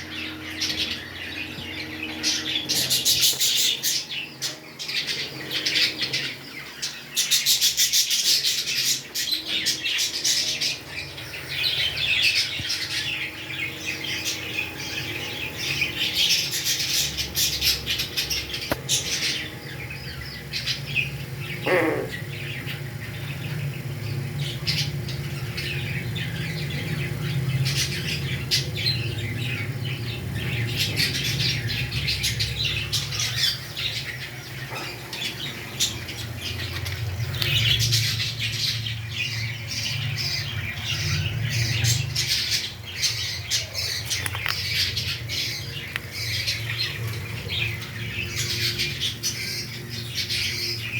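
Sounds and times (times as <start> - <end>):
parrots squawking and chattering: 0.0 - 50.9
steady low hum: 0.0 - 50.9.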